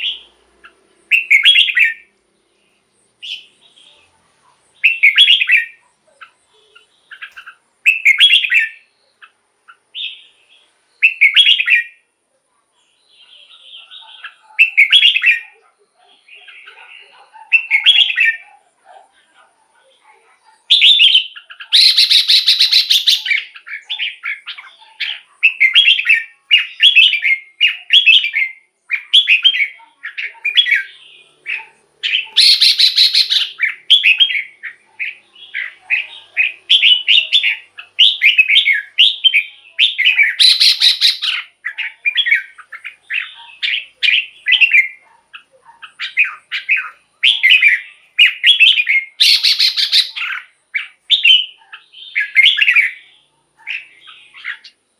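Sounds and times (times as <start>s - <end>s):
bird warbling song: 0.0s - 12.0s, 12.8s - 18.6s, 19.9s - 54.8s
harsh rasping bird call: 20.7s - 24.5s, 30.5s - 34.6s, 35.4s - 45.0s, 48.2s - 52.8s.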